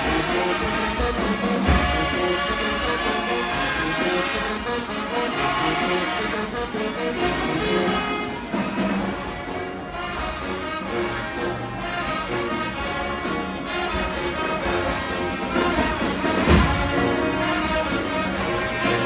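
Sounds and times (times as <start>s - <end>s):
marching band playing: 0.0s - 19.0s
heavy low drum hit: 1.0s - 3.6s, 15.8s - 17.8s.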